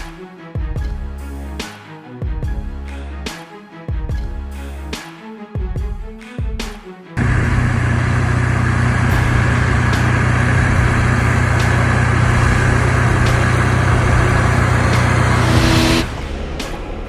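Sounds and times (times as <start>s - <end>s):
diesel engine running steadily: 7.2s - 16.1s.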